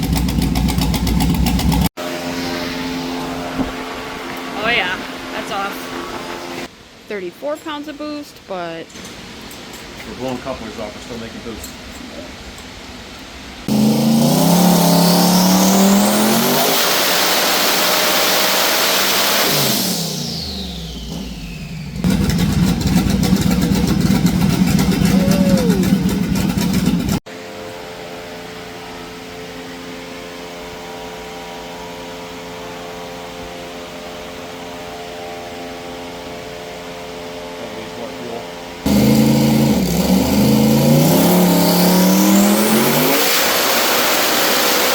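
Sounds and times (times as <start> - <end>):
engine crackle: 0.0 - 4.7, 13.7 - 27.2, 38.9 - 44.9
engine revving with turbo whistle: 0.0 - 6.7, 13.7 - 27.2, 38.8 - 44.9.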